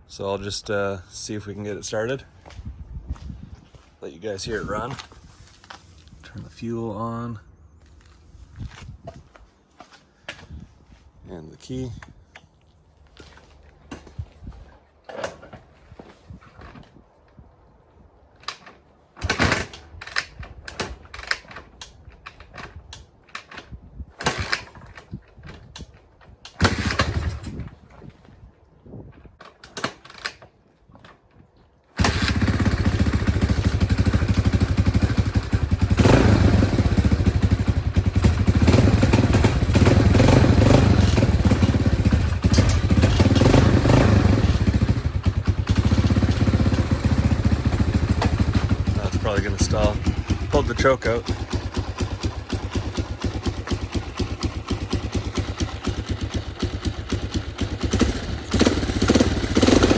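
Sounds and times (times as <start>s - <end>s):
engine starting attempts knocking: 18.4s - 28.3s, 32.0s - 59.9s
motorcycle engine running: 26.5s - 28.1s, 32.0s - 59.9s.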